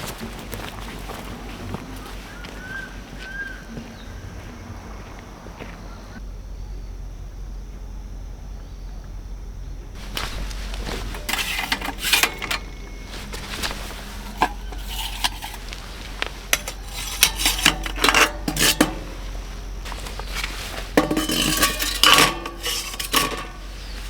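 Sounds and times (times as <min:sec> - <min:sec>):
cookware clinking and knocking: 0:10.0 - 0:24.0.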